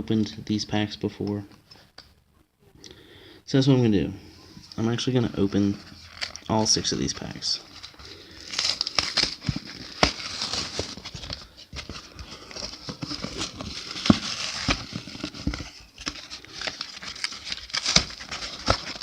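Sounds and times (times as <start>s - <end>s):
plastic packaging crinkling: 7.7s - 19.0s.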